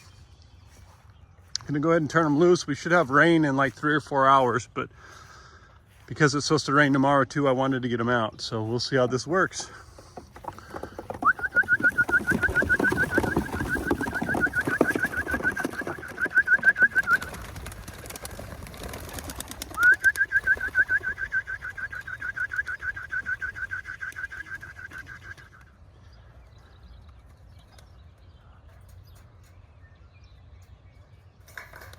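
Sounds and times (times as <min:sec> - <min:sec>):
pigeon wings flapping: 0:10.4 - 0:25.6.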